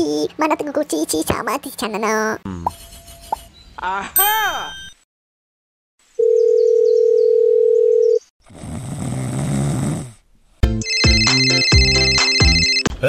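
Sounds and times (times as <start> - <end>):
electronic jingle with a beat: 10.8 - 12.8.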